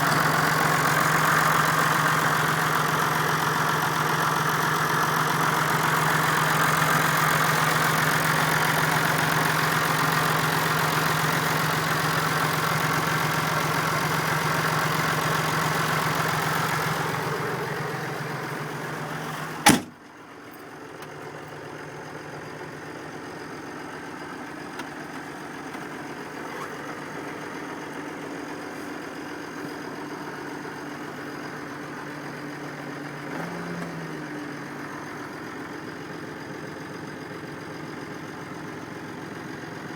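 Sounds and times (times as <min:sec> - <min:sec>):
tractor diesel engine idling: 0:00.0 - 0:39.9
sharp bang: 0:19.6 - 0:19.9.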